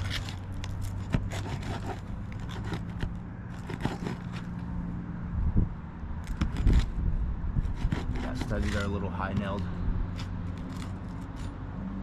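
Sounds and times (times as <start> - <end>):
shingle scraping and crackling: 0.0 - 4.7, 6.2 - 7.0, 7.6 - 11.6.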